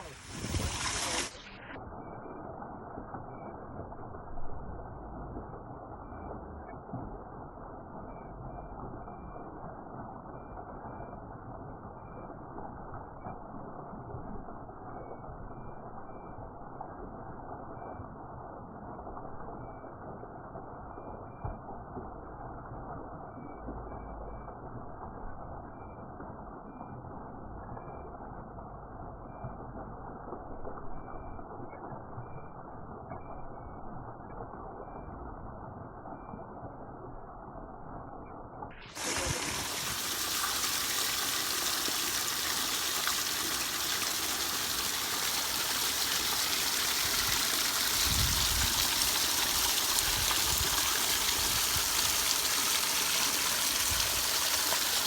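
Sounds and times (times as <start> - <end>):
waterfall rushing: 0.0 - 1.7, 38.8 - 55.0.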